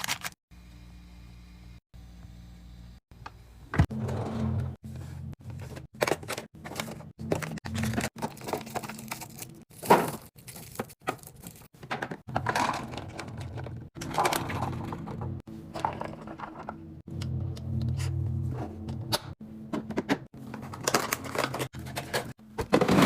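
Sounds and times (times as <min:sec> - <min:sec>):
packaging crinkling: 0:00.0 - 0:00.4, 0:06.1 - 0:11.7
items knocking and clicking: 0:05.4 - 0:18.0, 0:18.8 - 0:23.0.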